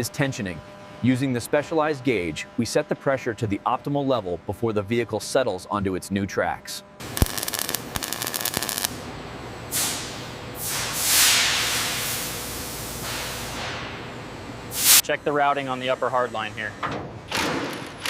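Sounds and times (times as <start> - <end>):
fast mechanical rattle: 7.1 - 8.9
hiss of air: 9.7 - 13.8, 14.7 - 15.0.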